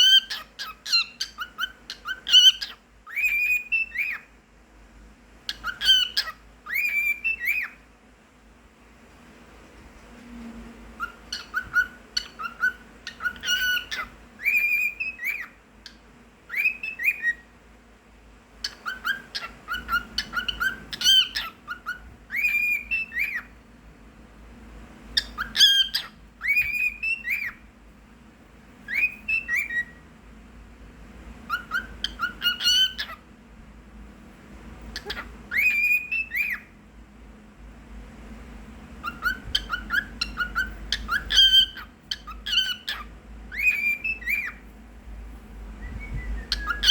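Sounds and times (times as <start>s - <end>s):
cockatiel whistling: 0.0s - 4.3s, 5.5s - 7.8s, 11.0s - 17.5s, 18.6s - 23.5s, 25.2s - 27.6s, 28.8s - 30.0s, 31.5s - 33.2s, 35.0s - 36.7s, 39.0s - 44.6s, 45.8s - 46.9s.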